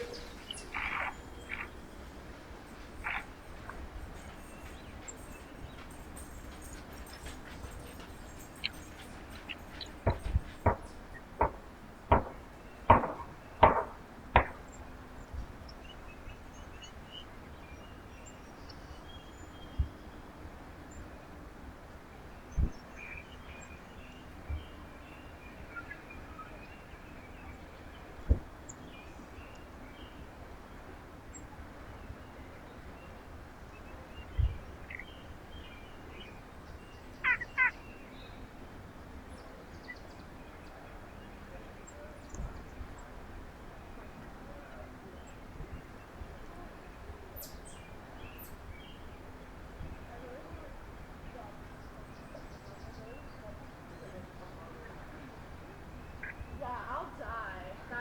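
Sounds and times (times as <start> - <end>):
faint bird chirps: 0.0 - 11.2
faint bird chirping: 0.0 - 11.4, 22.3 - 43.3, 44.0 - 58.0
sharp knocks: 10.0 - 14.7.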